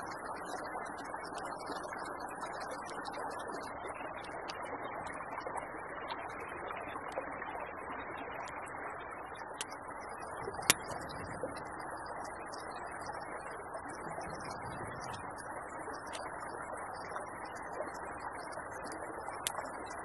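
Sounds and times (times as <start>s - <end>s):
campfire crackling: 9.4s - 20.0s.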